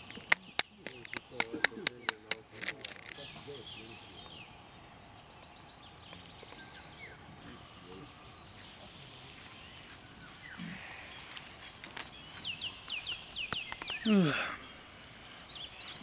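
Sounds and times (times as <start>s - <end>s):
wild birds chirping: 0.0s - 16.0s.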